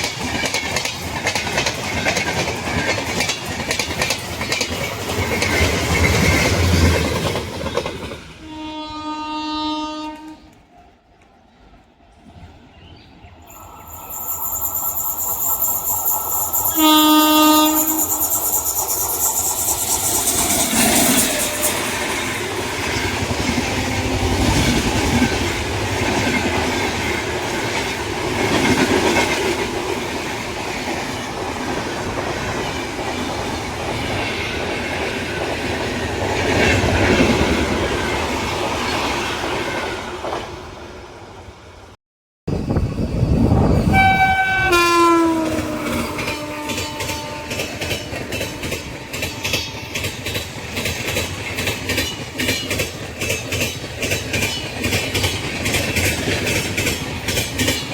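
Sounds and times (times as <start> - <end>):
train wheel clatter: 0.0 - 8.3, 13.6 - 39.2, 45.3 - 57.9
passing train rumble: 0.0 - 57.9
train horn blast: 8.4 - 10.6, 16.6 - 18.4, 43.8 - 49.9.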